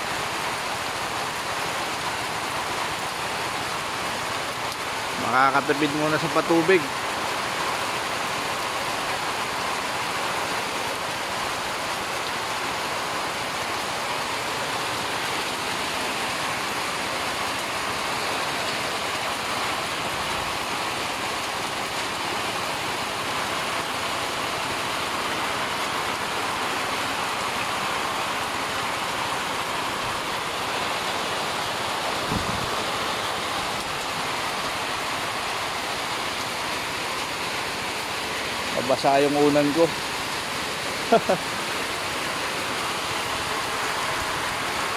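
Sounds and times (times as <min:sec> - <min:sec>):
steady rain falling: 0:00.0 - 0:44.9
brief low thump: 0:32.3 - 0:32.7.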